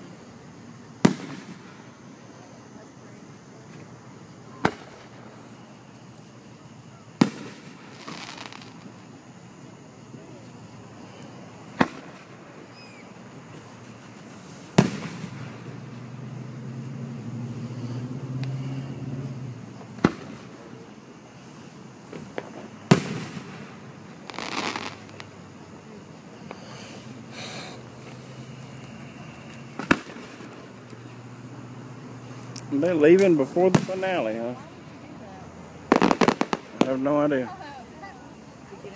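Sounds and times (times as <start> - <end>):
firework hiss: 0.0 - 38.9
firework shells bursting: 1.0 - 2.3, 7.2 - 9.8, 11.1 - 16.0, 19.7 - 31.1, 32.3 - 35.0, 35.9 - 37.4.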